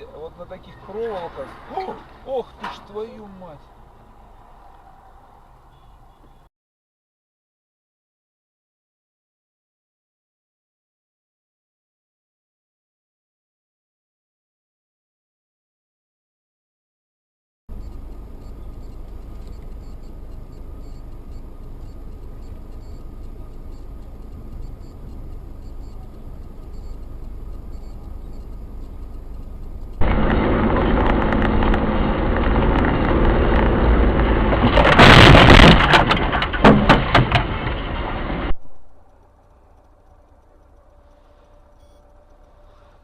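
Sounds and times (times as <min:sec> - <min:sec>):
car driving road noise: 0:00.0 - 0:06.5, 0:17.7 - 0:43.0
vehicle collision crash: 0:00.6 - 0:03.4, 0:30.0 - 0:38.8
sharp knocks and clatters: 0:30.0 - 0:38.4.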